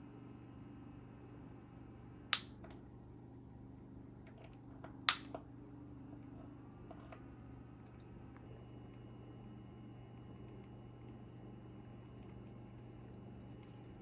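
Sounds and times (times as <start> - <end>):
humidifier humming: 0.0 - 14.0
sharp clicks: 5.1 - 5.3.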